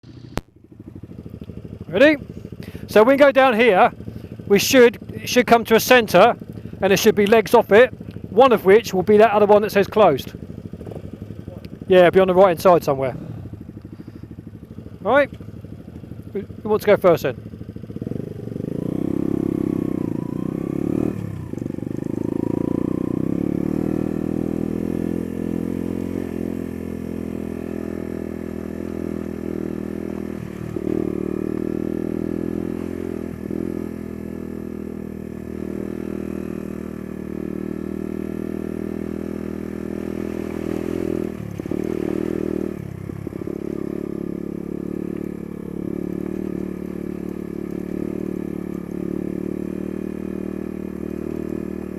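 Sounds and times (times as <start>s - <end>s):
small motorbike engine running: 0.0s - 51.9s.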